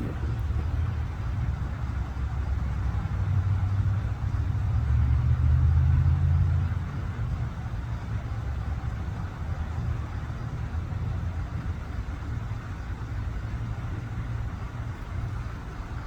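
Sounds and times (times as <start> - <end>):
engine humming: 0.0 - 2.3.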